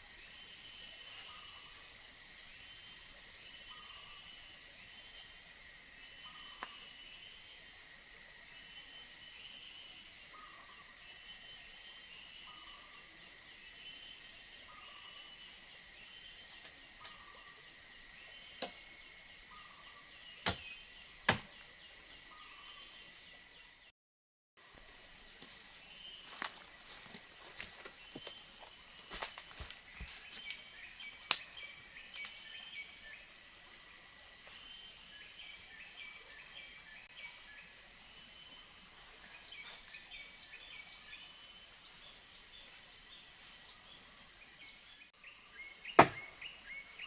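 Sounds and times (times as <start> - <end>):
insects buzzing high-pitched: 0.0 - 13.0
sharp snaps: 31.3 - 31.5.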